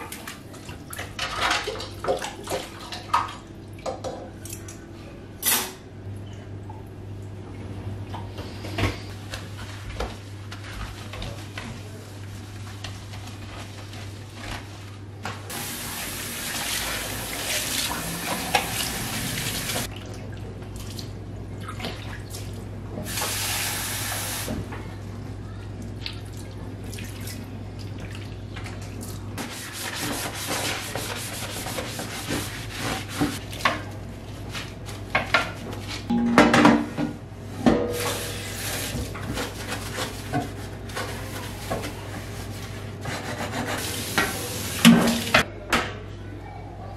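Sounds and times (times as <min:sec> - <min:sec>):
kitchen tap turned on and off: 0:15.5 - 0:19.9
water running into sink: 0:15.5 - 0:19.9, 0:43.8 - 0:45.4
dishes clinking and knocking: 0:36.1 - 0:37.1.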